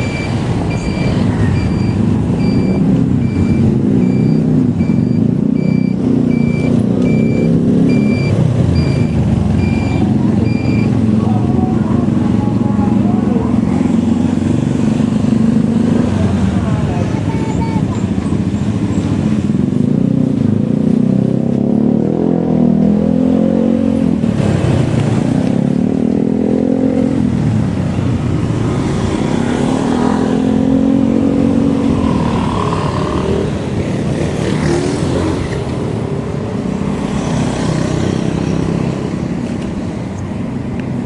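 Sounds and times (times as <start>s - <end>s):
road and wind noise: 0.0s - 41.0s
vehicle engines speeding up: 0.0s - 41.0s.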